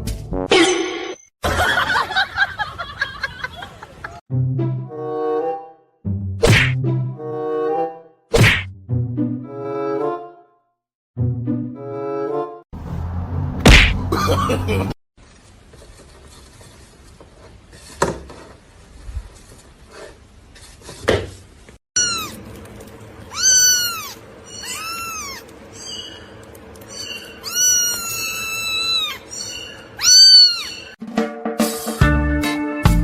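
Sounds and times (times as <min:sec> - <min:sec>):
cat meowing: 0:22.0 - 0:22.4, 0:23.3 - 0:25.5, 0:27.4 - 0:29.3, 0:30.0 - 0:31.0.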